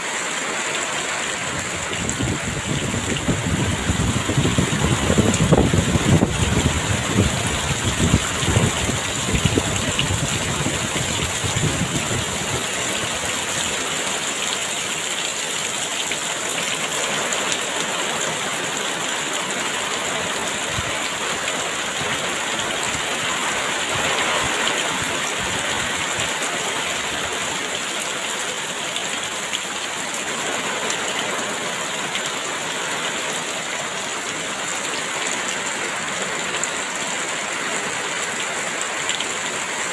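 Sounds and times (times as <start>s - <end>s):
heavy rain pouring: 0.0s - 39.9s
strong wind gusts rumbling: 1.4s - 13.3s.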